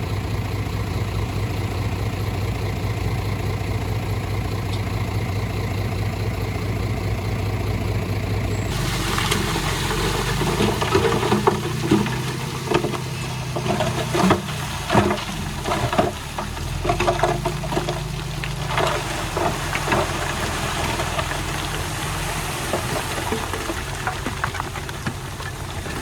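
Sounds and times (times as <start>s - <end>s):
diesel earthmover running: 0.0s - 26.0s
clanks and knocks: 8.7s - 21.9s.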